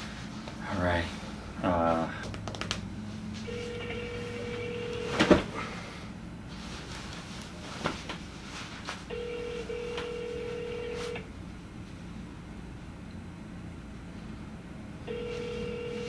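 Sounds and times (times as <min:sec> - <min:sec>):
telephone ringback tone: 0:03.4 - 0:05.5, 0:09.1 - 0:11.2, 0:15.0 - 0:16.0.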